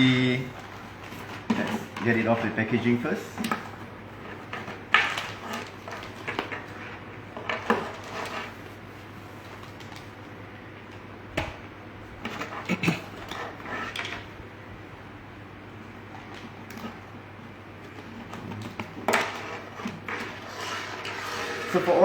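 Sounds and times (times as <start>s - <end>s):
packaging rustling: 0.5s - 11.1s.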